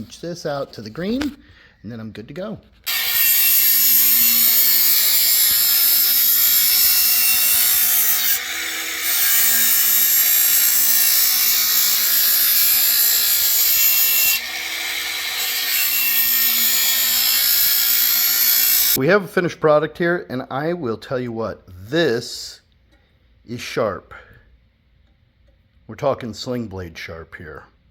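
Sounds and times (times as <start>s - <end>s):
blade grinding on belt sharpener: 2.8s - 19.0s.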